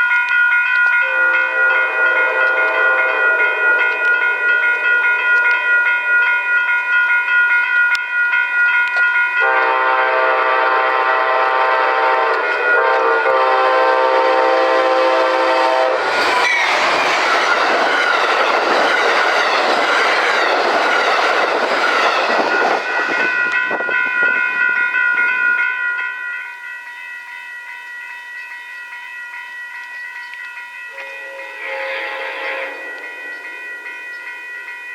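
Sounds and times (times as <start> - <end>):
steady high ringing: 0.0 - 11.4, 21.2 - 34.9
train horn blast: 1.0 - 4.2, 9.4 - 16.6, 31.0 - 33.2
train rushing past: 1.1 - 6.6, 9.4 - 25.5, 31.1 - 34.9.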